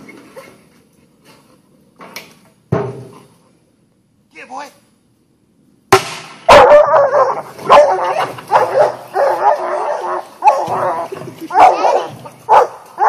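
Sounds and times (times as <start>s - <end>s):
dog barking and yelping: 6.5s - 13.0s.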